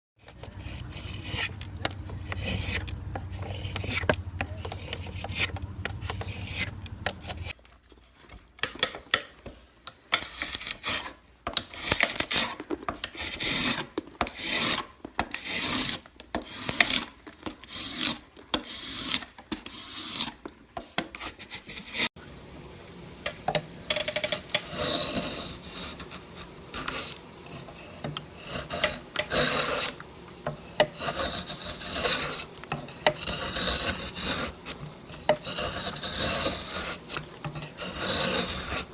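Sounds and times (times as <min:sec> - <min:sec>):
low steady hum: 0:00.2 - 0:07.8
carving tool scraping wood: 0:00.2 - 0:22.2, 0:23.9 - 0:38.9.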